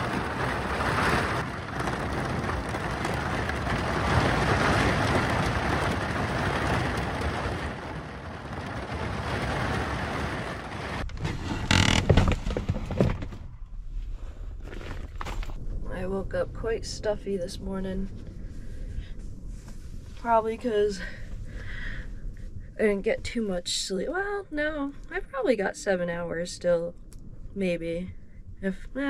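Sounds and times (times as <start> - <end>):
heavy rain on a camper roof: 0.0 - 13.2
knocks and rustles: 0.0 - 13.6.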